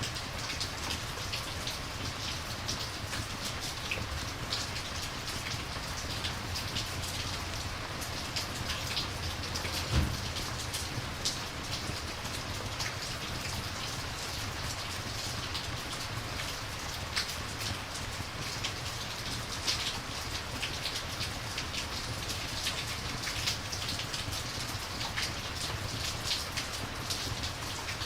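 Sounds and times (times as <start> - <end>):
steady rain hiss: 0.0 - 28.0
low thump: 9.8 - 10.4.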